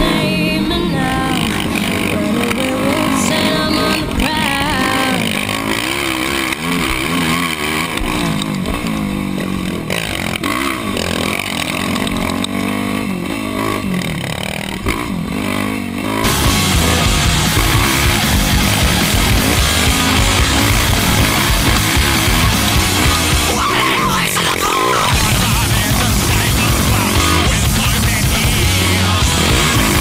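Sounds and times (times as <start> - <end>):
rock music: 0.0 - 6.7, 16.2 - 30.0
quad engine revving: 0.0 - 30.0.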